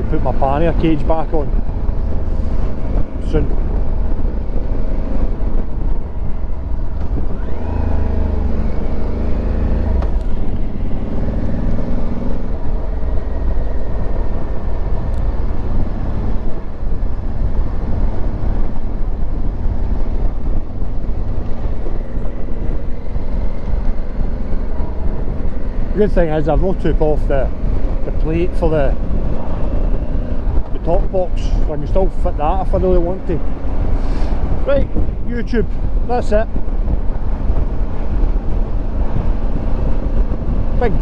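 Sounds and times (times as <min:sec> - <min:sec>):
road and wind noise: 0:00.0 - 0:41.0
motorcycle engine running: 0:01.6 - 0:26.0.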